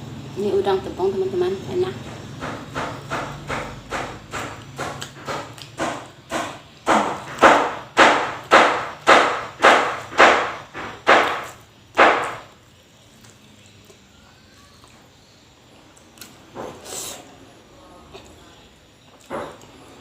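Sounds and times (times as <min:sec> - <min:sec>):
crunchy chewing of fried food: 0:04.0 - 0:07.8, 0:11.0 - 0:20.0.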